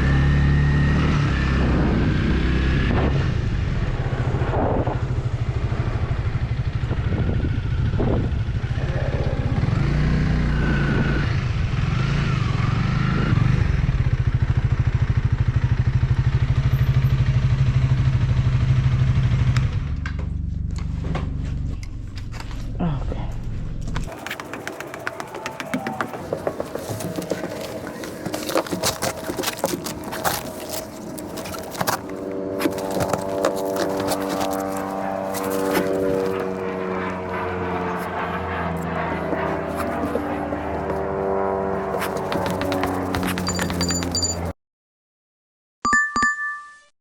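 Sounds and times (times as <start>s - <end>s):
motorcycle engine running: 5.0s - 22.6s, 23.3s - 44.5s.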